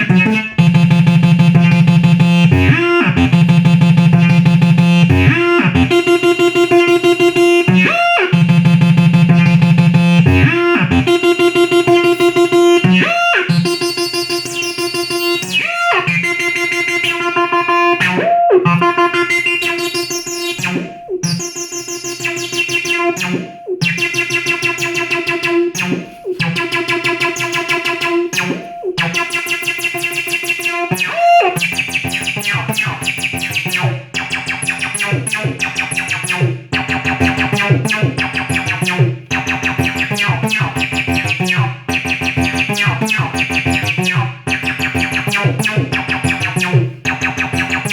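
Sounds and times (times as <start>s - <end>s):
synthesizer acid bassline: 0.0s - 47.9s.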